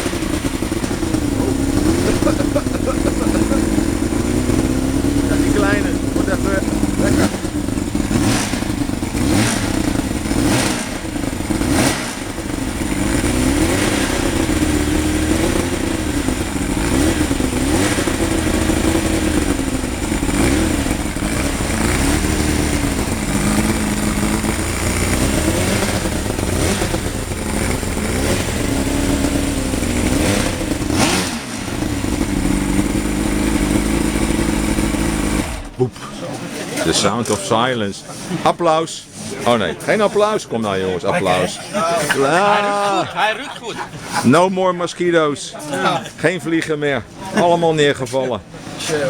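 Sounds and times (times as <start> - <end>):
outboard engine revving: 0.0 - 37.7.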